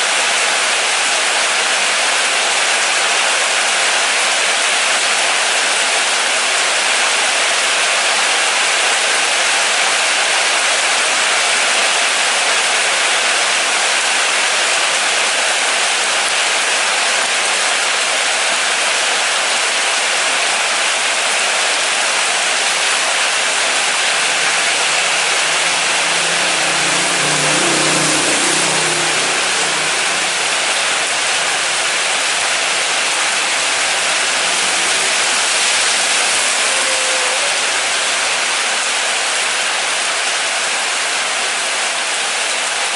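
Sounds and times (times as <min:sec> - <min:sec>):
loud rain falling: 0:00.0 - 0:42.9
vehicle engine passing: 0:22.2 - 0:38.9.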